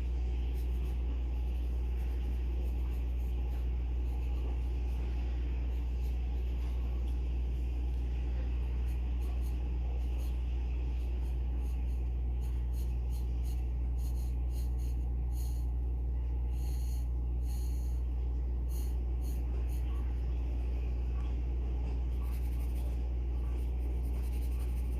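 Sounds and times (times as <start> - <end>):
pencil scratching on paper: 0.0 - 15.8, 16.5 - 20.2, 21.9 - 24.9
steady low hum: 0.0 - 24.9.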